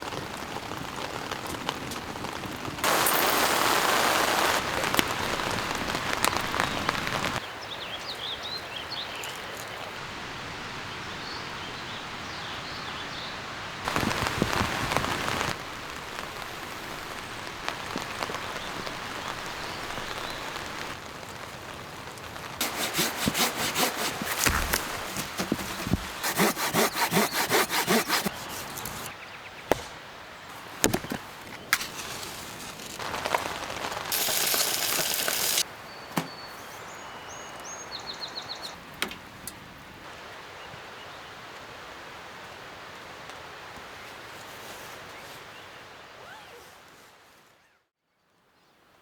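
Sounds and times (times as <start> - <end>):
steady rain falling: 0.0 - 29.2, 29.8 - 47.4
saw cutting wood: 22.6 - 29.1.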